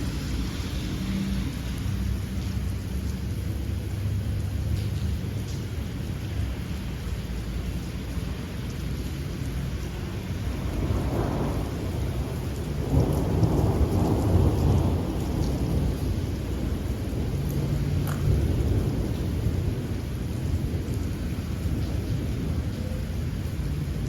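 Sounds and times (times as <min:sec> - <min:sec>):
steady rain: 0:00.0 - 0:24.0
low rolling thunder: 0:10.3 - 0:24.0.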